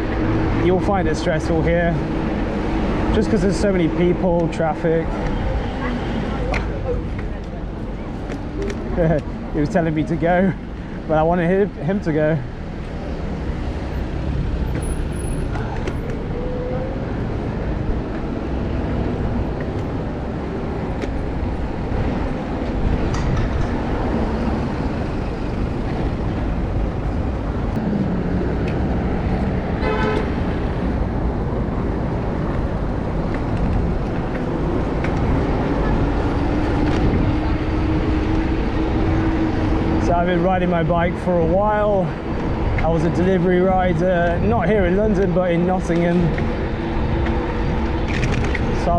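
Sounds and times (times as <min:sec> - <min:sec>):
passing traffic engines and tyres: 0:00.0 - 0:48.9
vehicle horn toot: 0:29.8 - 0:30.4.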